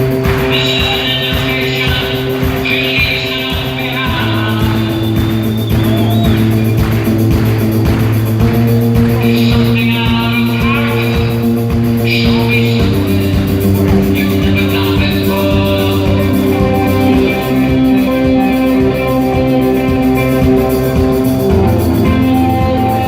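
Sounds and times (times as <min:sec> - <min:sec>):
person singing: 0:00.0 - 0:06.8, 0:09.0 - 0:23.0
live rock band playing: 0:00.0 - 0:23.0.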